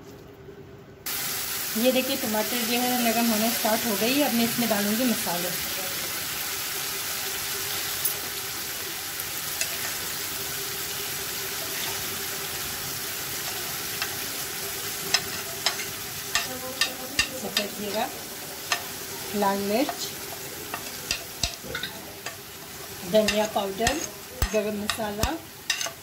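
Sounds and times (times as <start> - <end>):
tomatoes sizzling in a frying pan: 1.1 - 26.0
spatula stirring in a pan: 13.3 - 26.0.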